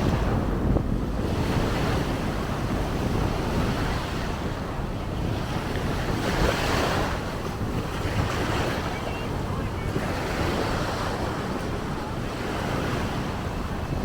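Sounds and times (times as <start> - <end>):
ocean waves washing on beach: 0.0 - 14.0
wind buffeting microphone: 0.0 - 14.0.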